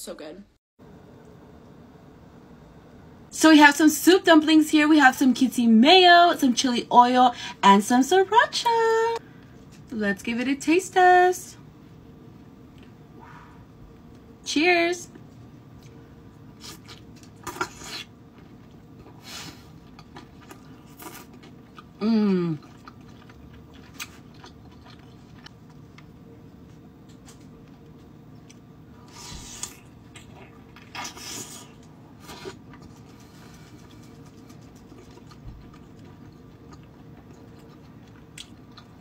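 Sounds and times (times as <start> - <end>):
wet chewing mouth sounds: 16.6 - 26.1, 29.2 - 39.0
person humming mm: 22.0 - 22.7.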